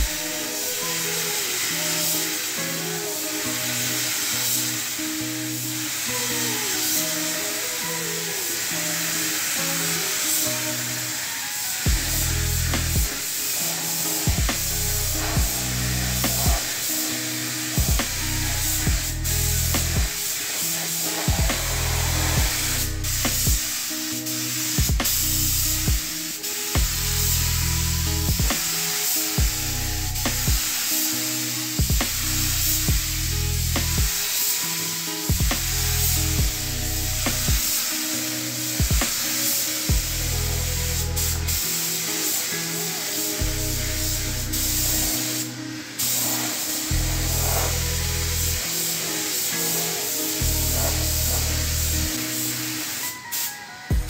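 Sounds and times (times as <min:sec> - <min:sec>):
spray gun hissing: 0:00.0 - 0:54.0
background music with low beat: 0:11.9 - 0:13.4, 0:14.0 - 0:17.0, 0:17.6 - 0:20.3, 0:21.0 - 0:23.9, 0:24.8 - 0:30.9, 0:31.7 - 0:34.4, 0:35.3 - 0:37.9, 0:38.8 - 0:39.3, 0:39.9 - 0:41.6.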